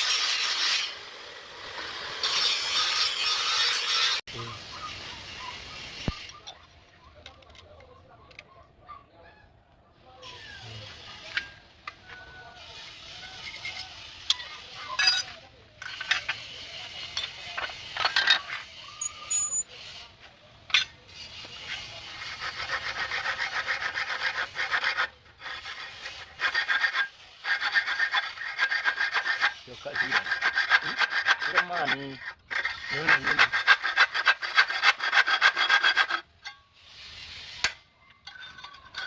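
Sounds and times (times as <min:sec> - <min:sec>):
knocks and scrapes: 0:10.2 - 0:39.0
bow saw rasping strokes: 0:10.3 - 0:37.9.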